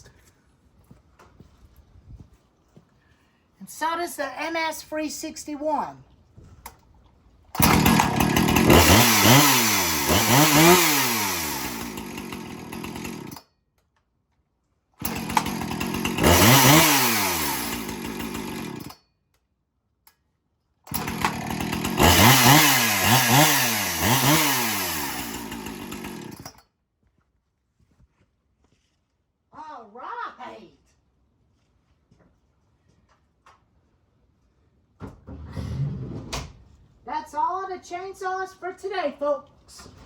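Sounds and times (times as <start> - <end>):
chainsaw revving: 7.6 - 13.4, 15.0 - 19.0, 20.9 - 26.6.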